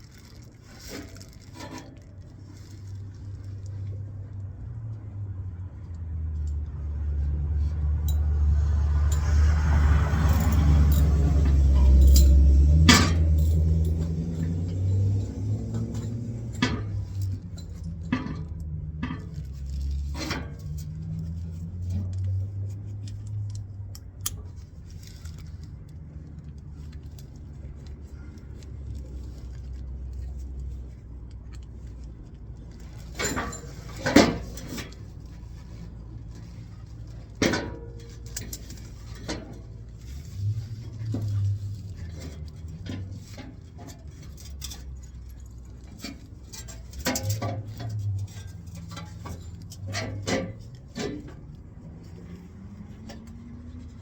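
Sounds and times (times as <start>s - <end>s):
low steady rumble: 0.0s - 54.0s
metallic clinks and knocks: 8.0s - 25.6s, 26.8s - 54.0s.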